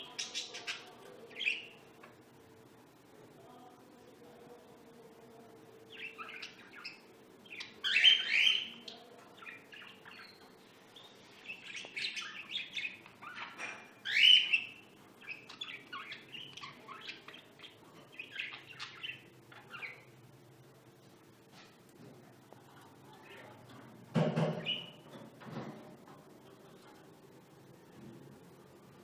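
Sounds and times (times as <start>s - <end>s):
lovebirds chirping: 0.0s - 2.1s, 5.9s - 20.3s, 24.6s - 25.1s
shrill bird calls: 6.0s - 8.8s, 11.5s - 17.2s.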